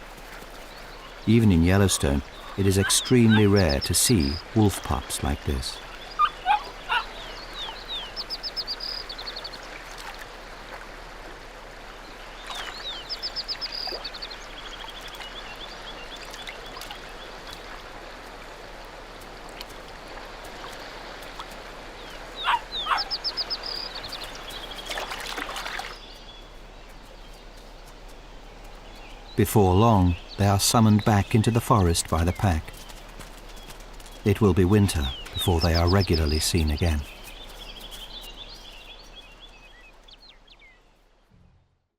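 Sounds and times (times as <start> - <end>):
songbird trilling: 0.8 - 9.6, 22.0 - 26.5, 34.1 - 40.8
high squeaky calls: 1.2 - 8.6, 22.4 - 24.0.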